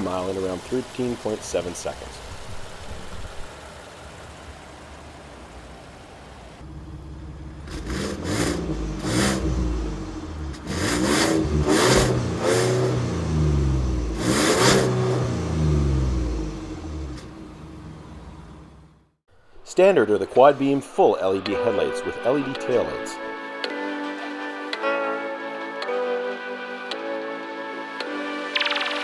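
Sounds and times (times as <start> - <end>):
truck engine idling and revving: 0.0 - 19.3.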